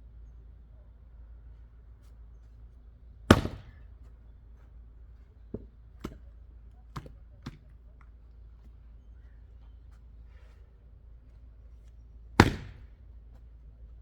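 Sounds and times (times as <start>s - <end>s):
axe striking wood: 3.3s - 3.8s, 12.4s - 13.0s.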